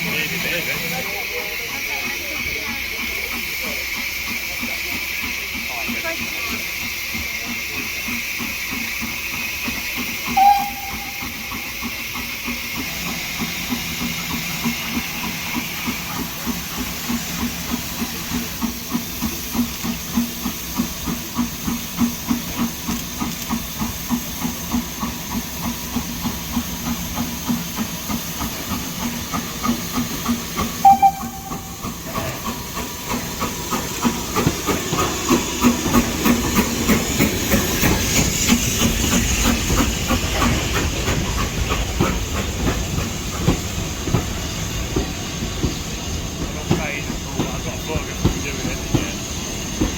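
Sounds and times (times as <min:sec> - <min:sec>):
steam locomotive chuffing: 0:00.0 - 0:49.9
short high pip: 0:30.8 - 0:31.8.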